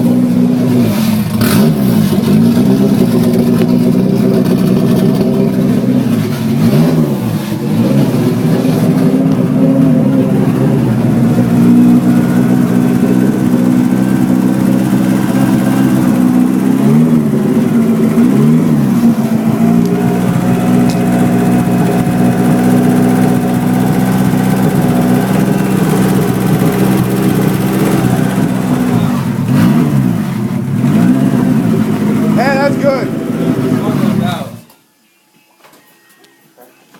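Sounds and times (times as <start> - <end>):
car engine running: 0.0 - 34.6.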